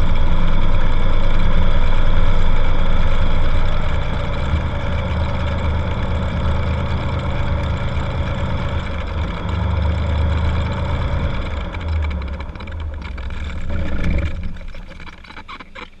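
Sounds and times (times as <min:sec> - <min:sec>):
piston aircraft engine idling: 0:00.0 - 0:16.0
engine clicks: 0:00.1 - 0:16.0.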